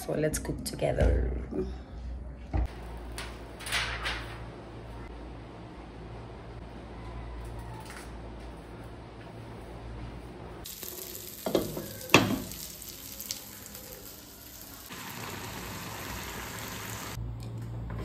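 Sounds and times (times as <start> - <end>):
food sizzling in a pot: 10.6 - 17.2.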